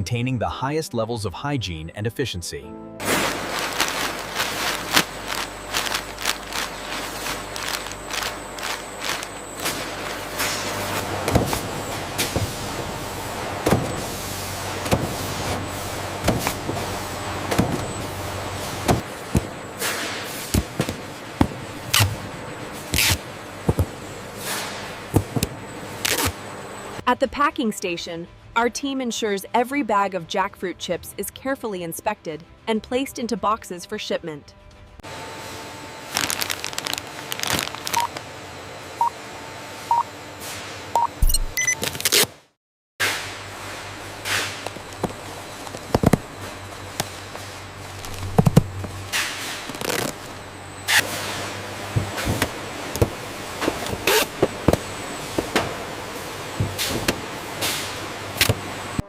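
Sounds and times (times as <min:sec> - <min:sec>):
machinery humming: 0:03.0 - 0:27.1, 0:35.0 - 0:41.9, 0:43.2 - 0:59.0
clicks and plastic rustling: 0:36.1 - 0:38.2
short electronic beeps: 0:37.9 - 0:38.1, 0:41.0 - 0:41.8.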